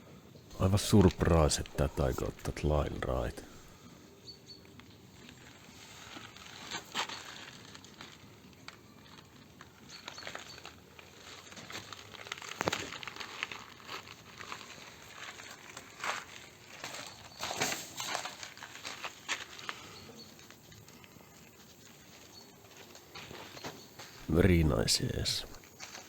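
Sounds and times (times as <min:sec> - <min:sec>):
crinkly material rustling: 0:11.2 - 0:17.2.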